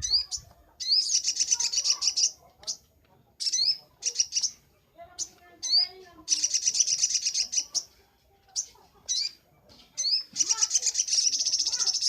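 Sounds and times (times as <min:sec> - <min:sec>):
sunbird chirping: 0:03.4 - 0:07.9, 0:10.0 - 0:12.0.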